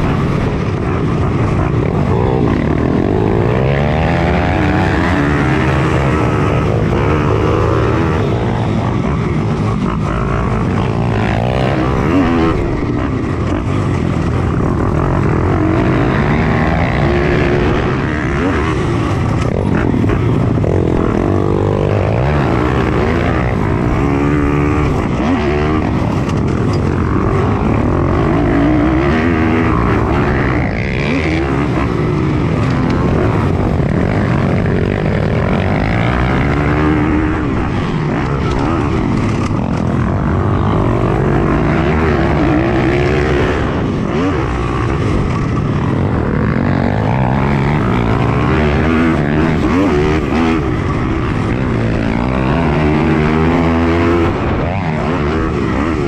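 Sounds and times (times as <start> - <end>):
other pit bikes running: 0.0 - 56.0
pit bike engine revving: 0.0 - 56.0.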